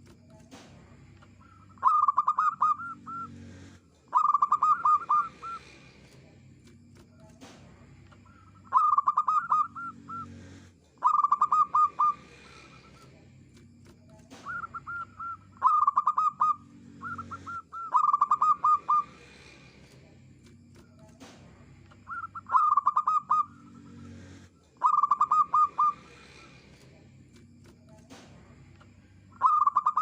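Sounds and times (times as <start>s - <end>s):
dove cooing: 1.5s - 3.3s, 4.1s - 5.8s, 8.4s - 13.0s, 14.4s - 19.6s, 22.1s - 23.8s, 24.8s - 26.5s, 29.4s - 30.0s.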